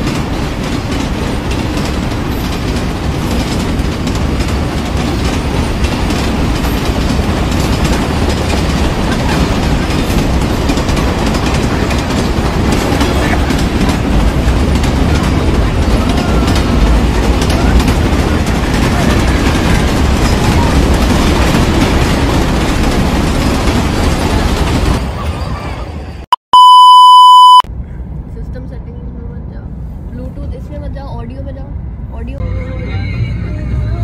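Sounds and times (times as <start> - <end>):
wheel clatter: 0.0 - 25.2
freight train rumbling past: 0.0 - 26.2
loud steady test tone beep: 26.5 - 27.7.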